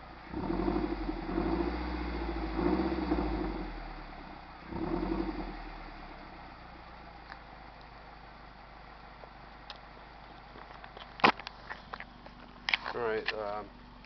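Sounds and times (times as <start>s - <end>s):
car engine revving and idling: 0.0s - 10.6s.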